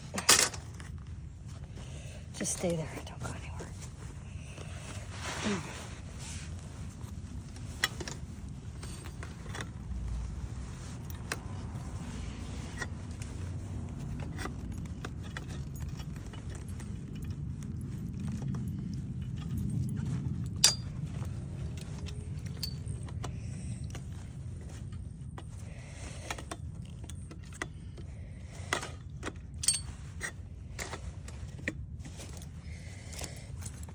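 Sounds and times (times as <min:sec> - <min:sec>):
steady low rumble: 0:00.0 - 0:33.9
metallic clinks of parts: 0:00.1 - 0:01.0, 0:06.9 - 0:10.3, 0:14.0 - 0:25.6, 0:26.2 - 0:33.9.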